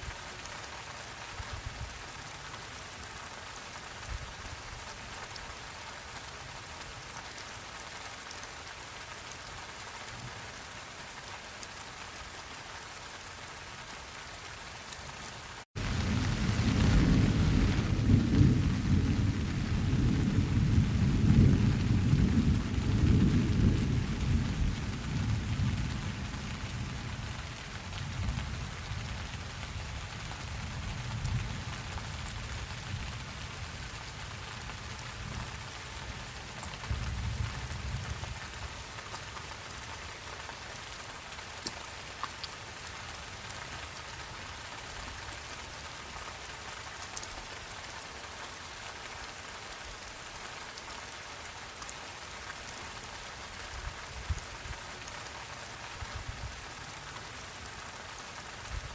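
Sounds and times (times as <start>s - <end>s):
steady rain falling: 0.0s - 58.9s
thunder rolling: 15.8s - 26.2s.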